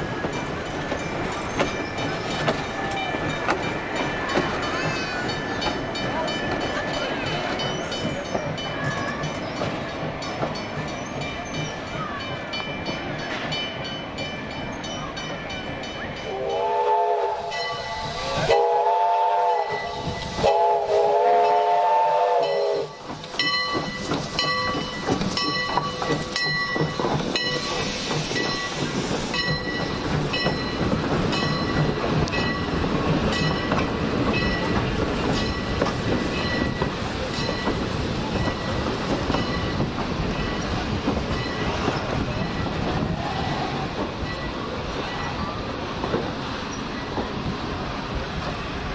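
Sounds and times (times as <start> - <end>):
train wheels clattering on rails: 0.0 - 48.9
train horn blasts: 16.3 - 23.0.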